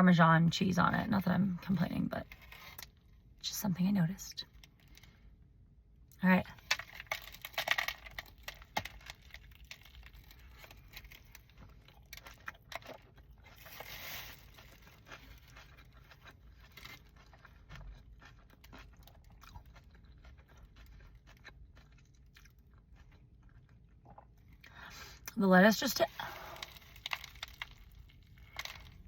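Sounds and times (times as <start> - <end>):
person chewing food: 6.5 - 25.3, 26.2 - 29.0.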